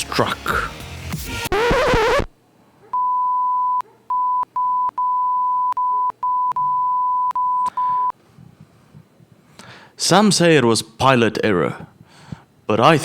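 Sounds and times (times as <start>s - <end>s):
high bleep tone: 3.0s - 8.2s.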